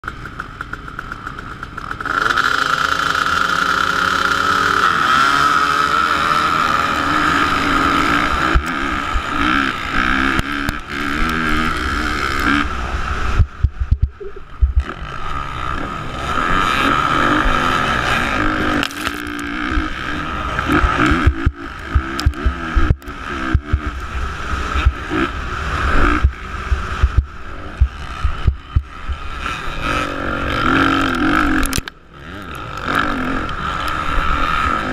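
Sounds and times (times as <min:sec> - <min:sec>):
motocross bike engine revving: 0:00.0 - 0:34.9
wind noise: 0:07.1 - 0:15.5
brief low thumps: 0:13.4 - 0:14.8.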